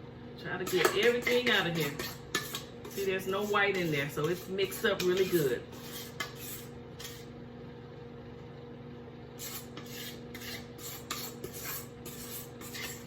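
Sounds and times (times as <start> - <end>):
spatula scraping bowl: 0.6 - 7.4, 9.4 - 13.0.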